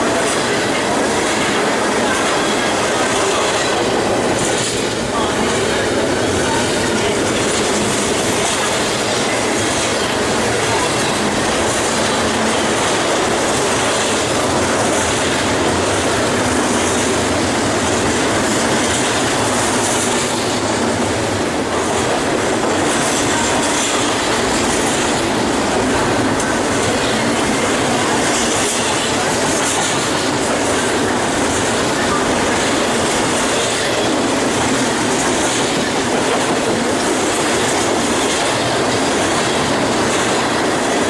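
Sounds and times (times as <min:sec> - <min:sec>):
freight train rolling on rails: 0:00.0 - 0:41.0.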